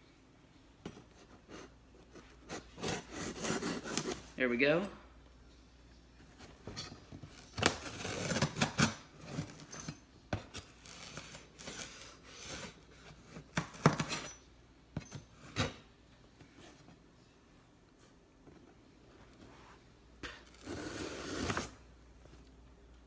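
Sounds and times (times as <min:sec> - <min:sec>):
cardboard tearing and rustling: 0:02.4 - 0:04.4, 0:07.2 - 0:09.7, 0:10.5 - 0:14.1, 0:20.5 - 0:21.8.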